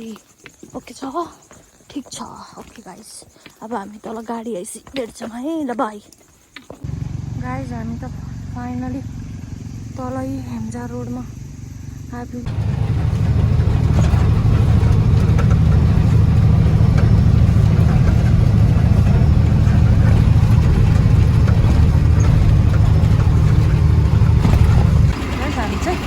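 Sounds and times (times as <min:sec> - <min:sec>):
truck engine rumbling: 0:06.8 - 0:26.0.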